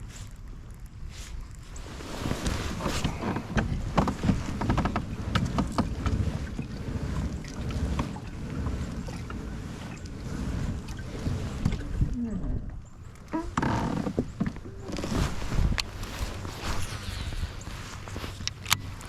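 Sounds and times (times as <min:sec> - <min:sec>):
kayak on water: 0:00.0 - 0:19.0
wind rumbling on microphone: 0:00.0 - 0:19.0.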